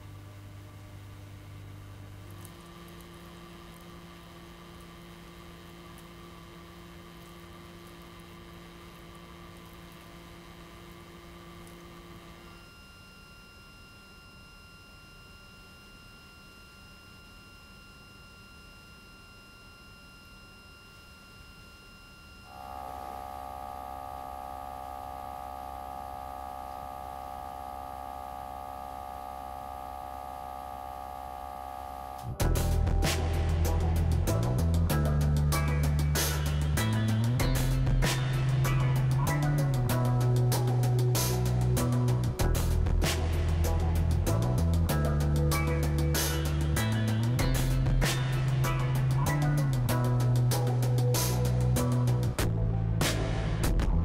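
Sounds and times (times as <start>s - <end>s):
computer cooling fans humming: 0.0s - 19.6s, 21.7s - 53.0s
whining tones: 2.3s - 52.9s
loud burst of music: 32.3s - 54.0s.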